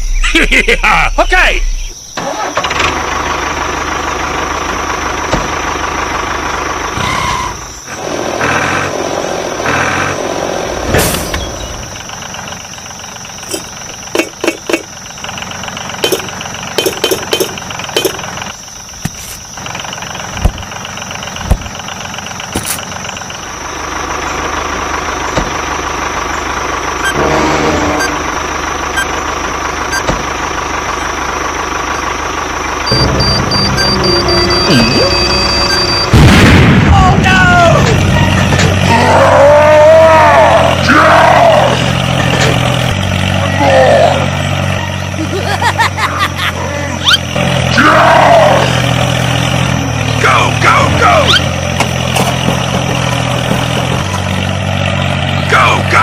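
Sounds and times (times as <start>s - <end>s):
sharp clicks and knocks: 16.0s - 18.3s.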